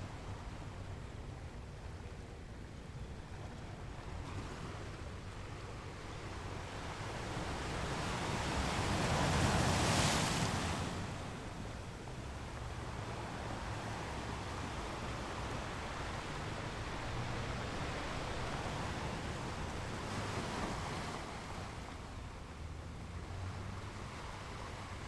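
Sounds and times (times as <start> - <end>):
sea waves washing: 7.2 - 22.2.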